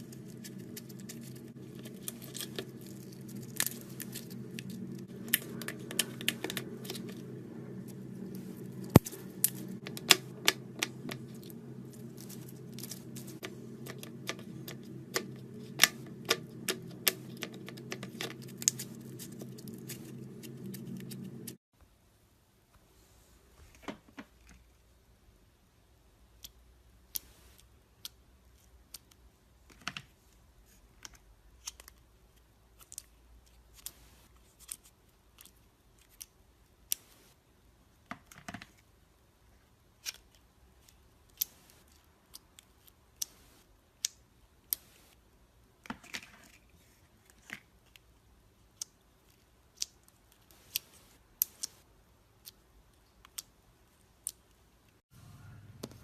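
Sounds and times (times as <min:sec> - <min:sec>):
slime squishing: 0:00.0 - 0:21.6.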